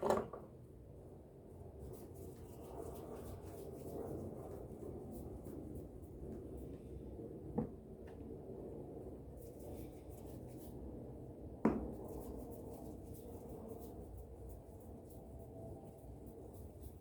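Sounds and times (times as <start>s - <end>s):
sharp knocks in a kitchen: 0.0s - 0.5s, 11.6s - 12.0s.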